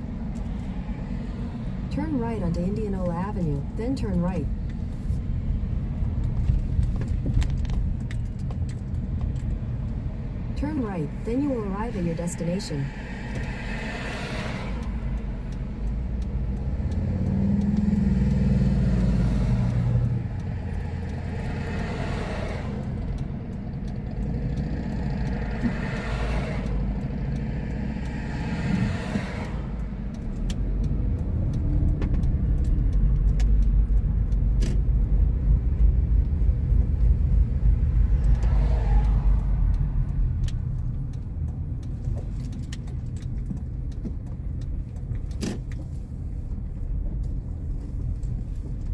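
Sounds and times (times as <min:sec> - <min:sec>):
car road and engine rumble: 0:00.0 - 0:48.9.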